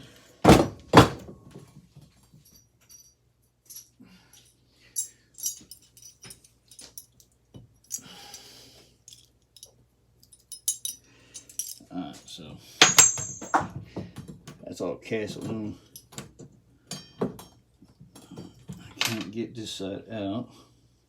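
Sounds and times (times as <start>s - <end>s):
light metal clinks and taps: 2.2s - 8.5s, 9.1s - 11.9s, 12.8s - 13.7s, 15.8s - 18.4s
metal parts knocking: 10.4s - 11.8s, 12.8s - 13.7s.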